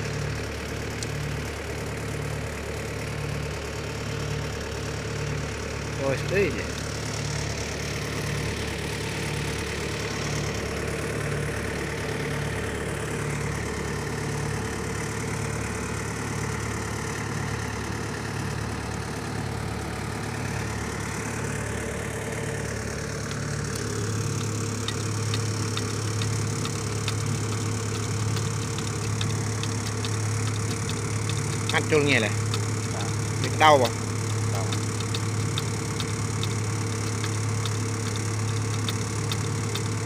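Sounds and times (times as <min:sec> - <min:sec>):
diesel engine idling: 0:00.0 - 0:40.0
light ticking: 0:23.2 - 0:40.0.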